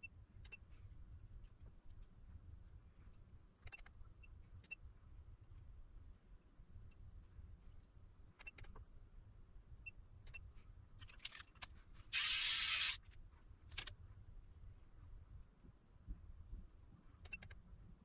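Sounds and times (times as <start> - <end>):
short loud hiss: 12.1 - 13.0.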